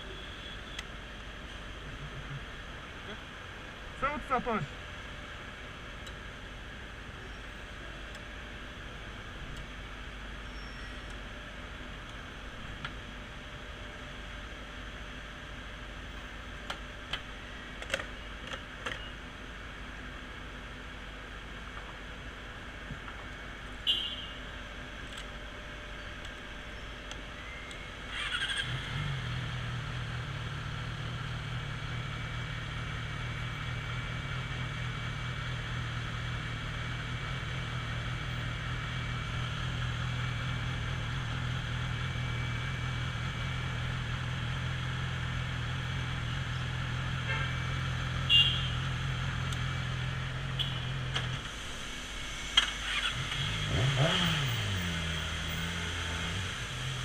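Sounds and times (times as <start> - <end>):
motorcycle engine revving and idling: 27.7 - 57.0.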